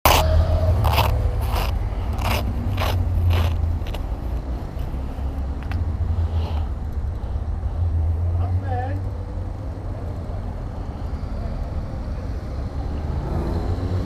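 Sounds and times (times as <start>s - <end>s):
sharp crackling bursts: 0.0s - 4.5s
motorcycle engines rumbling: 0.0s - 14.0s.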